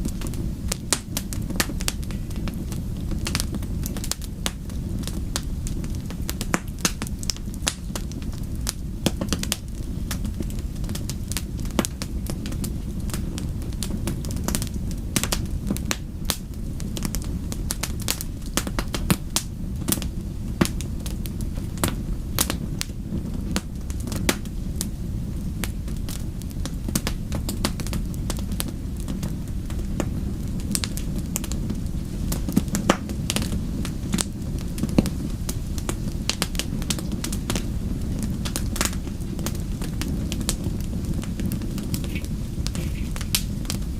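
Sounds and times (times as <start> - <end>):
steady low rumble: 0.0 - 43.9
wood fire crackling and popping: 0.0 - 43.9.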